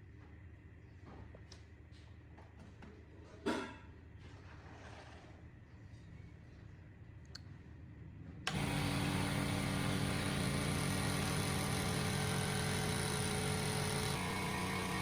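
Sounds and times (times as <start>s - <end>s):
air compressor running: 8.5s - 15.0s.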